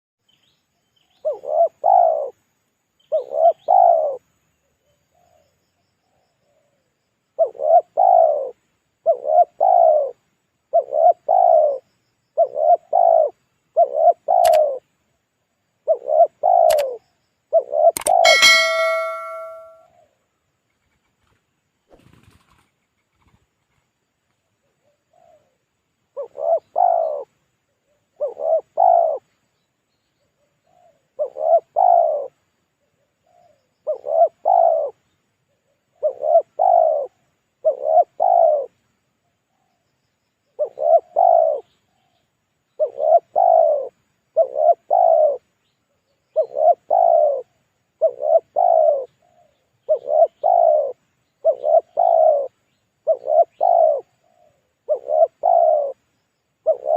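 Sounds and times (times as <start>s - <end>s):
dove cooing: 1.2s - 2.4s, 3.1s - 4.2s, 7.4s - 11.8s, 12.4s - 14.8s, 15.8s - 19.6s, 26.2s - 27.3s, 27.9s - 29.2s, 30.4s - 35.0s, 35.6s - 38.8s, 40.6s - 42.0s, 42.8s - 45.4s, 46.3s - 56.0s, 56.6s - 56.9s.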